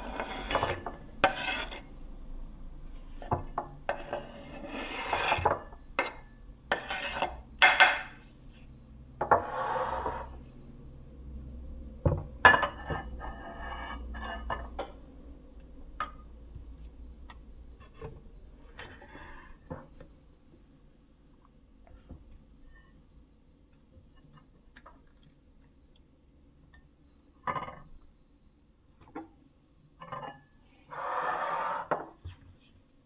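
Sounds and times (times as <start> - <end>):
dishes and utensils clinking: 5.1 - 8.2, 12.5 - 15.0.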